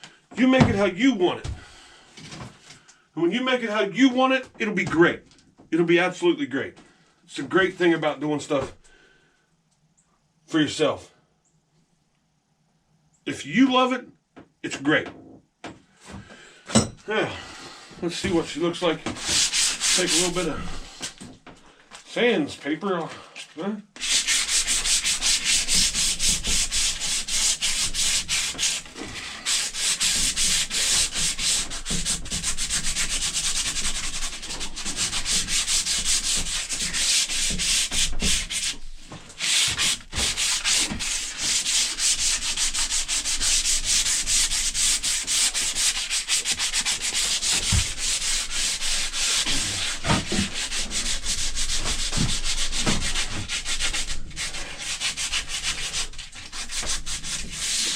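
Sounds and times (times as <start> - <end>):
sandpaper rubbing on wood: 18.3 - 21.2, 24.0 - 57.9.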